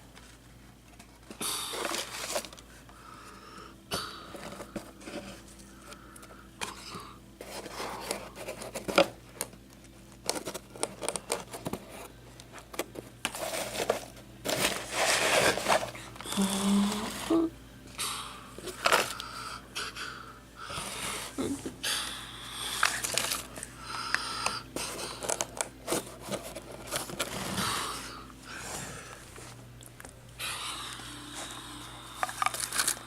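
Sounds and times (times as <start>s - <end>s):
plastic being handled: 7.4s - 17.5s, 24.8s - 27.5s, 32.2s - 33.0s.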